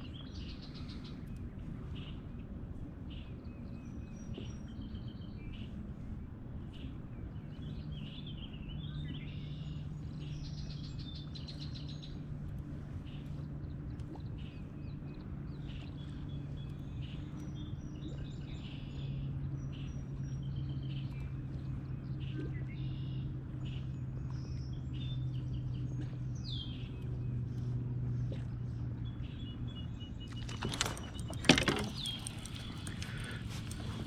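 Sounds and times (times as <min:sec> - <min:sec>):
low hum: 0:00.0 - 0:34.0
birds chirping: 0:06.8 - 0:34.0
sharp clattering knocks: 0:30.3 - 0:33.3.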